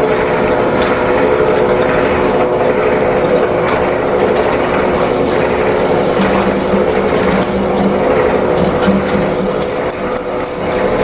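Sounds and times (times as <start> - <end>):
lathe running: 0.0 - 11.0.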